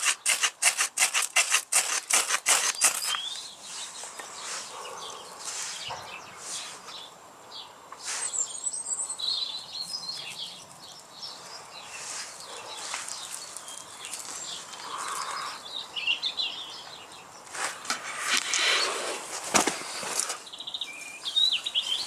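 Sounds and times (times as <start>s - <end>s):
hand drill spindle rubbing on wood: 0.0s - 3.4s
small birds chirping: 0.0s - 22.0s.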